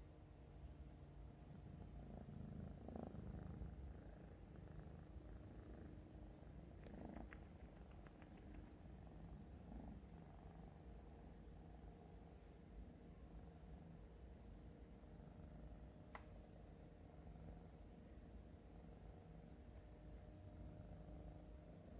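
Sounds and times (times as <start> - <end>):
kitten purring: 1.2 - 12.2
soft clicks: 6.8 - 8.8, 16.1 - 16.4.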